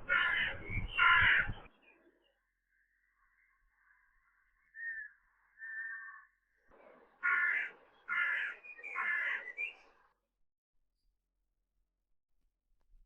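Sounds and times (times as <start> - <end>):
crow cawing: 0.0 - 1.6, 7.2 - 9.6.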